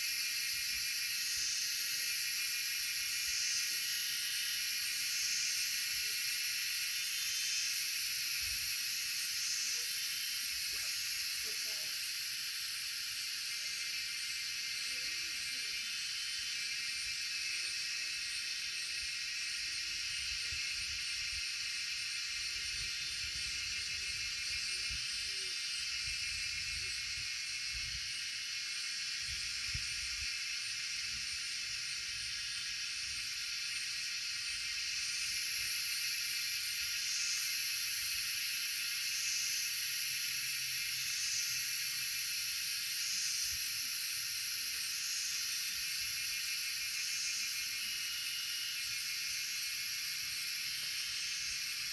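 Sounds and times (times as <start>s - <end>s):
steady high-pitched hiss: 0.0s - 51.9s.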